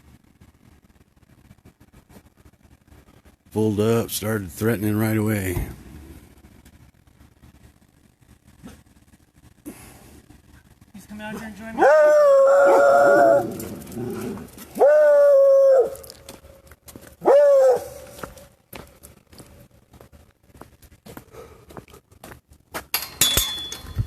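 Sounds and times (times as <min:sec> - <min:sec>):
dog howling: 0:11.8 - 0:16.2, 0:17.2 - 0:18.1
rustling: 0:13.0 - 0:14.9.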